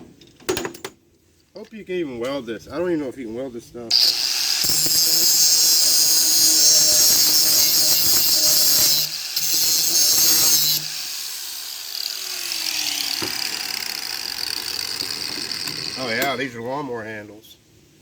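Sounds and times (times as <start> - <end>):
saw motor spinning down: 3.9 - 16.4
power saw cutting metal tube: 3.9 - 16.6.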